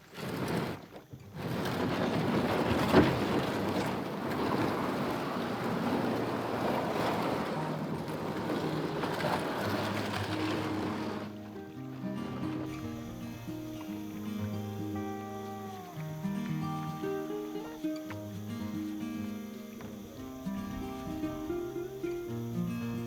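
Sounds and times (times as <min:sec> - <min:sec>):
river water rushing: 0:01.4 - 0:23.0
soft background music: 0:08.6 - 0:23.0.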